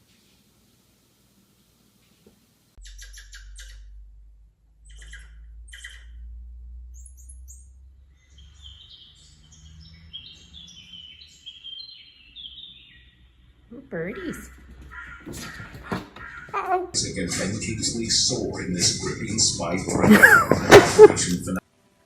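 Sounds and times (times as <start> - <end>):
birds chirping: 2.8 - 4.0, 4.8 - 6.3, 6.9 - 21.6.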